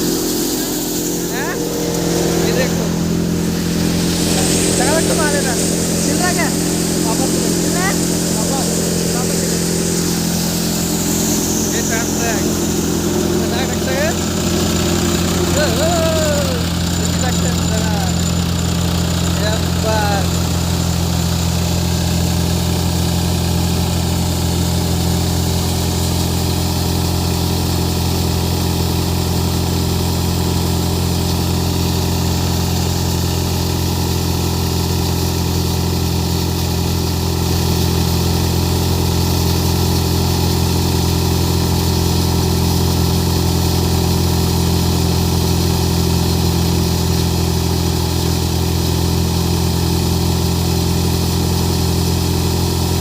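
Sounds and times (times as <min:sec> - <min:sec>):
threshing machine: 0:00.0 - 0:27.5
tractor diesel engine running: 0:00.0 - 0:53.0.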